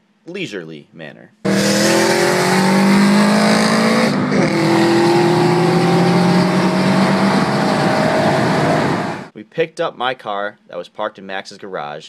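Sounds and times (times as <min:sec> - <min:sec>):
car engine accelerating: 0:01.5 - 0:09.3
road and wind noise: 0:01.5 - 0:09.3.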